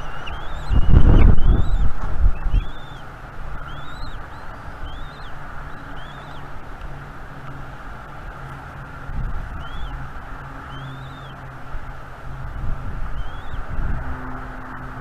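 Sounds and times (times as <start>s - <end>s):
eagle chicks peeping: 0.0s - 6.6s, 9.2s - 11.4s, 12.5s - 14.0s
wind on microphone: 0.0s - 15.0s.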